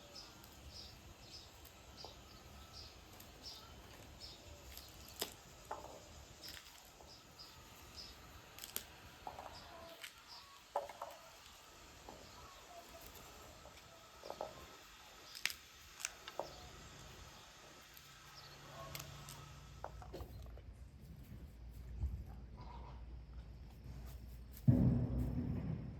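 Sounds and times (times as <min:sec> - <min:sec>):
birds chirping: 0:00.0 - 0:20.6
small sharp clicks and snaps: 0:08.5 - 0:09.0, 0:15.3 - 0:16.4.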